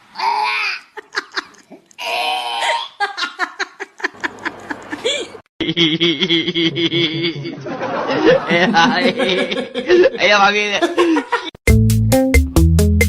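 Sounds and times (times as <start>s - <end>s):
people laughing and giggling: 0.8s - 1.8s, 3.0s - 11.6s
people talking: 9.9s - 11.0s.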